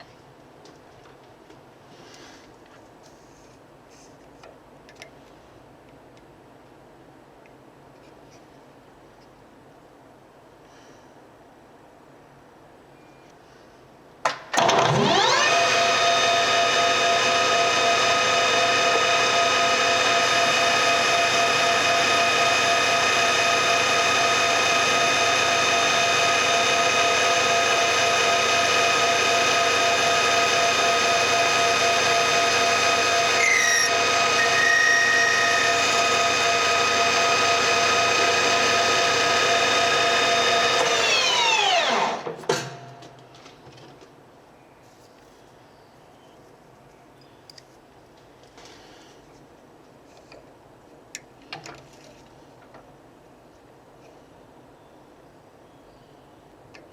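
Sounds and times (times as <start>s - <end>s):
lathe spindle whining: 14.6s - 42.4s.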